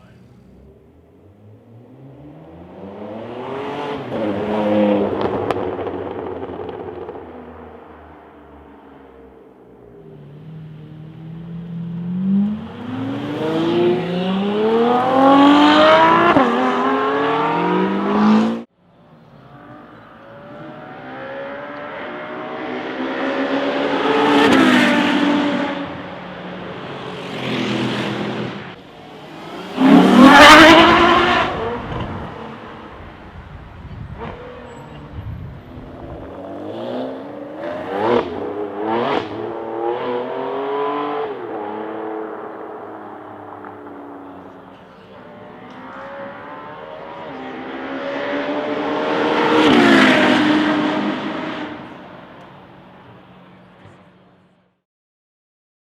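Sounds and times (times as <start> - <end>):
sports car accelerating: 0.0 - 18.7, 19.3 - 52.6
car passing by: 26.7 - 33.1, 45.2 - 52.0.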